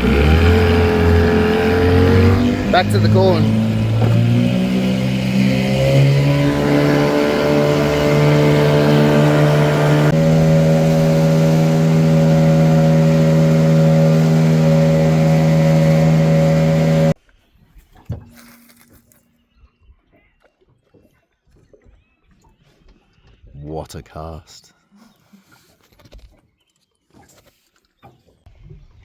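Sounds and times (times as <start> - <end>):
outboard motor running: 0.0 - 17.2.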